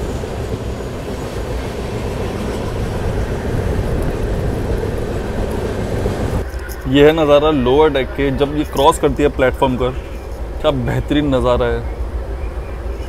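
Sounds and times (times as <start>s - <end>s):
train wheels running on rail: 0.0s - 13.0s.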